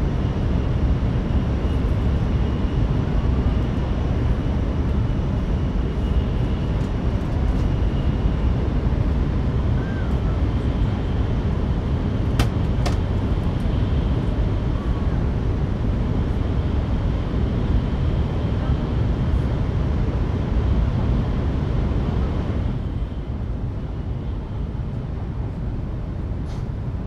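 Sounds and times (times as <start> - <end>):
train cabin rumble: 12.1 - 13.7.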